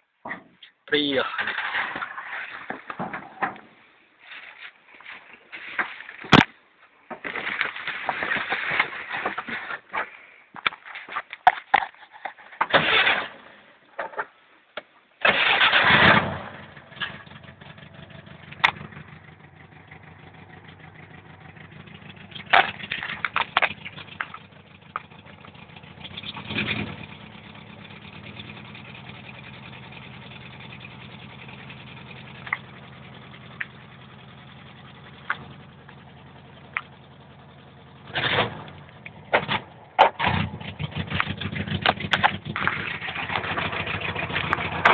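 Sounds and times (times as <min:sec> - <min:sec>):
engine cranking and starting: 0:01.2 - 0:03.1, 0:12.7 - 0:13.5, 0:15.2 - 0:44.9
engine idling: 0:15.8 - 0:44.9
sharp engine knocks: 0:38.1 - 0:44.9.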